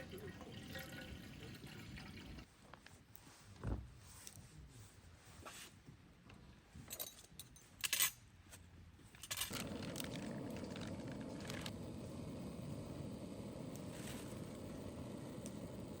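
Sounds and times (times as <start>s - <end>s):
metallic clinks and rattles: 6.8s - 8.2s, 9.1s - 10.1s.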